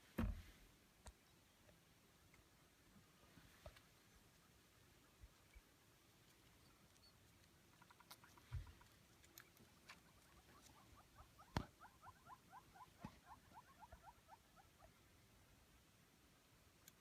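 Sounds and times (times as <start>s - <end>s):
wild dogs twittering: 9.8s - 15.0s.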